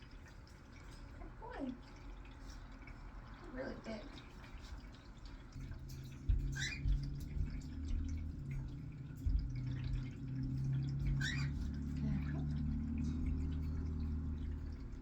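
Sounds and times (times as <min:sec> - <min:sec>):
steady low hum: 0:04.2 - 0:15.0
parrot chirps: 0:06.5 - 0:07.0, 0:11.0 - 0:12.4.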